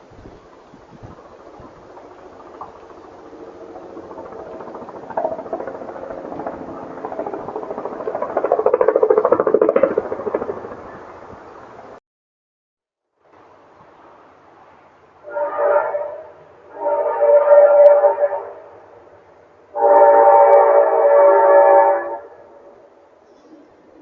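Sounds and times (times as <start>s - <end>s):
helicopter rotor pulsing: 0.1s - 12.0s.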